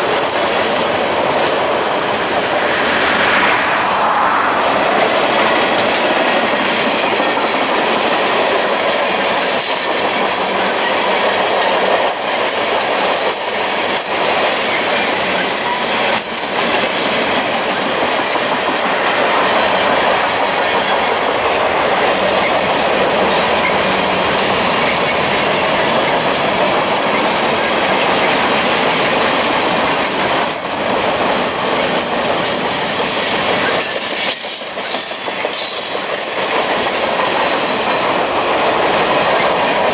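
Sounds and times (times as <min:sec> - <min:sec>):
train wheels on rails: 0:00.0 - 0:39.9
high-pitched wheel squeals: 0:28.5 - 0:37.0.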